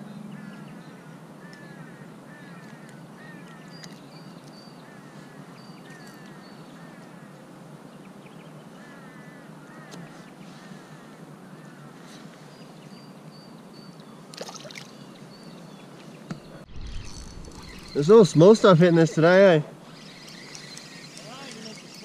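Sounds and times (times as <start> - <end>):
birds chirping: 11.6 - 22.0
thin high bird whistles: 16.4 - 18.4.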